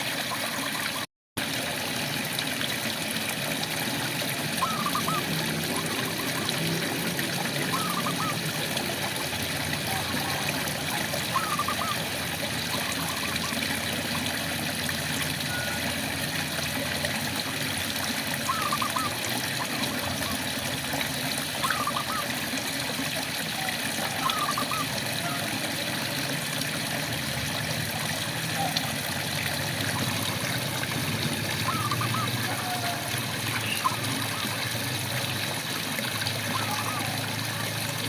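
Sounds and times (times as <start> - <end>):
frog warbling calls: 4.4 - 14.2, 15.3 - 16.6, 18.4 - 20.6, 21.5 - 22.6, 23.4 - 25.8, 27.9 - 34.9, 36.4 - 37.9.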